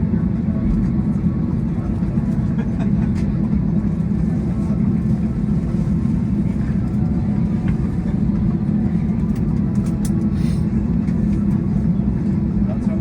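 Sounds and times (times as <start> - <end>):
aircraft cabin drone: 0.0 - 13.0.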